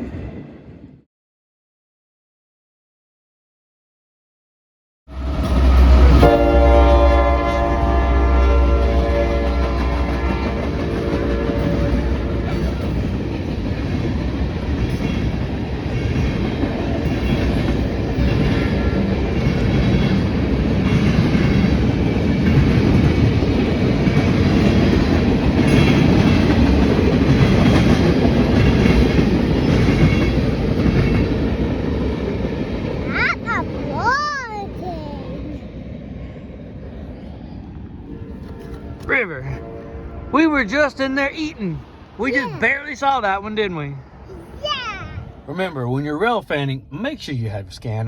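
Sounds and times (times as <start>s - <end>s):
train horn: 5.1s - 13.2s, 38.1s - 41.3s
train wheels clattering on rails: 8.9s - 33.1s.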